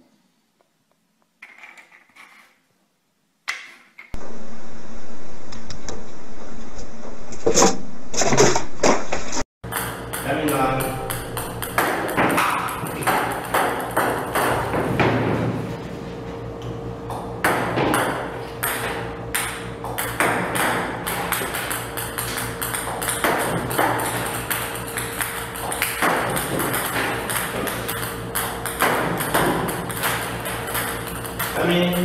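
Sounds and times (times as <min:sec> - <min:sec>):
table tennis balls clicking: 0:09.7 - 0:14.8, 0:18.6 - 0:32.0.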